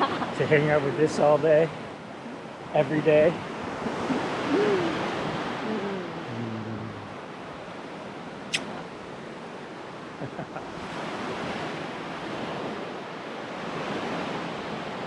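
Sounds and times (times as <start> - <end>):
ocean surf washing onto beach: 0.0 - 15.0
sharp click: 8.5 - 8.8.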